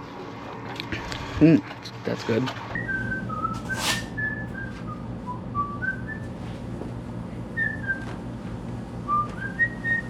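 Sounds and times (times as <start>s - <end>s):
steady low hum: 0.0s - 10.0s
person whistling a tune: 2.8s - 6.3s, 7.5s - 8.1s, 9.0s - 10.0s.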